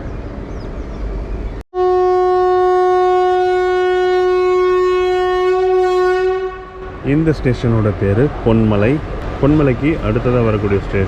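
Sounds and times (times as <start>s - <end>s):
train horn blast: 1.7s - 6.9s
train running: 6.8s - 11.0s.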